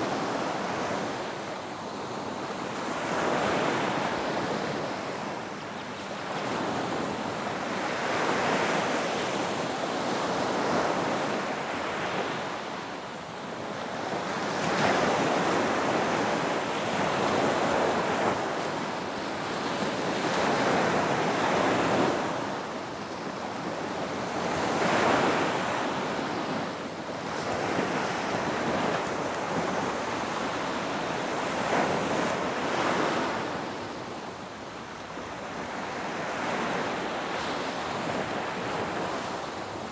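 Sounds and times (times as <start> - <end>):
ocean surf breaking on beach: 0.0 - 39.9.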